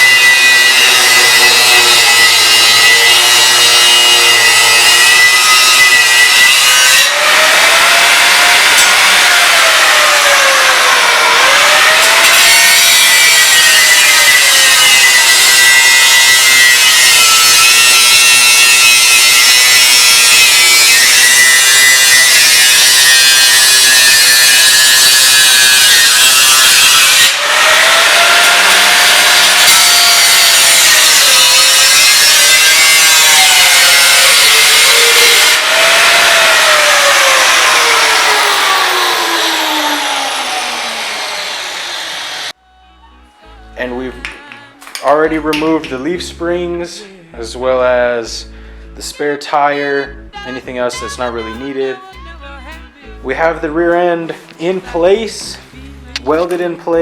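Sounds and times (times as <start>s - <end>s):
power saw cutting: 0.0s - 42.6s.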